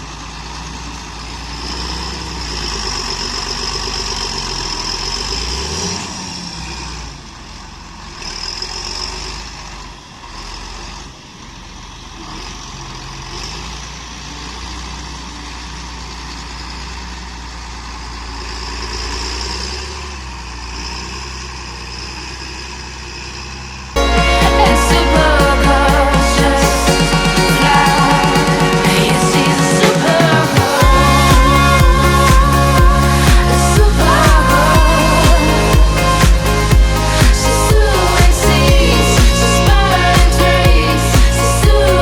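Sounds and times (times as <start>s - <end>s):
tractor diesel engine running: 0.0s - 42.0s
high thin whine: 24.0s - 42.0s.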